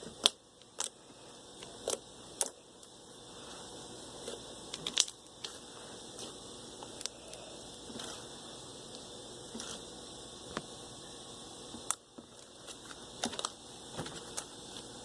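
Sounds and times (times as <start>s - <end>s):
slime squishing: 0.0s - 3.6s, 4.2s - 8.4s, 9.5s - 9.9s, 11.8s - 14.9s.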